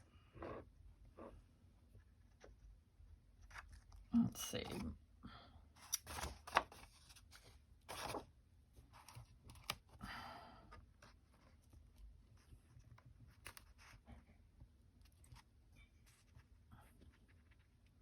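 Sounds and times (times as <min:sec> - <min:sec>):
paper crinkling: 0:05.8 - 0:08.3.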